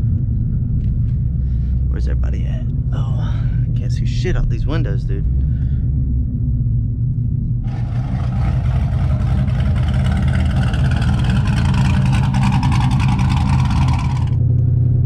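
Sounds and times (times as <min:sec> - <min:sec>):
car engine running: 0:00.0 - 0:15.0
high rushing whine: 0:06.5 - 0:14.5.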